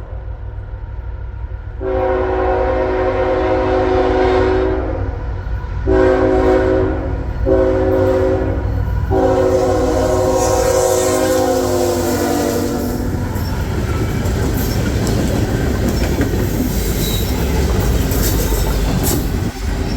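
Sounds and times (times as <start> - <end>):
passing train rumble: 0.0 - 19.9
locomotive air horn: 1.8 - 5.2, 5.8 - 14.3.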